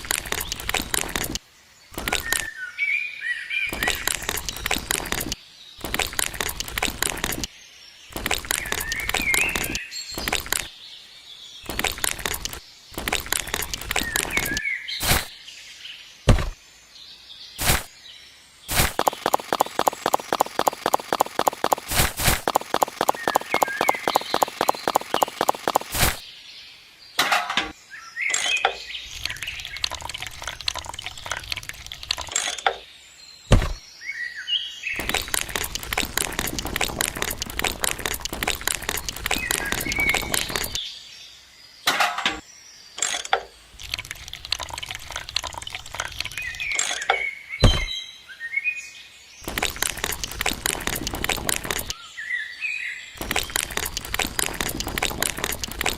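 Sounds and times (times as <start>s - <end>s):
fast mechanical clicking: 0.0s - 1.4s, 2.0s - 2.5s, 3.7s - 7.5s, 8.1s - 10.7s, 11.6s - 15.3s, 18.7s - 26.2s, 29.1s - 32.7s, 35.0s - 40.8s, 43.8s - 47.9s, 49.4s - 52.0s, 53.2s - 55.9s
birds chirping: 0.0s - 55.9s
sharp knocks: 16.3s - 16.6s, 33.5s - 33.8s.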